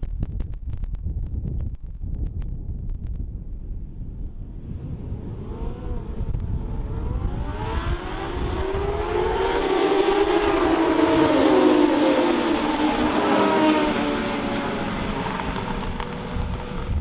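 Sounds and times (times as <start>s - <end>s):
wind rumbling on microphone: 0.0s - 17.0s
racing motorcycle engines: 4.4s - 17.0s.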